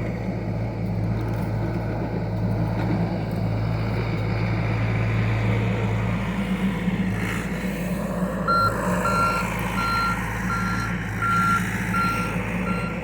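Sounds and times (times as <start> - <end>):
diesel engine running: 0.0 - 13.0
travel alarm beeping: 8.5 - 13.0.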